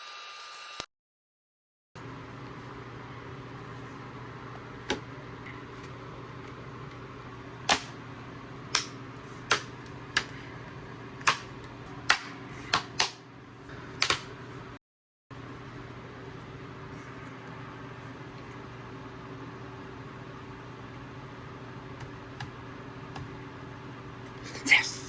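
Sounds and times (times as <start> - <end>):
steady low hum: 2.0 - 25.0.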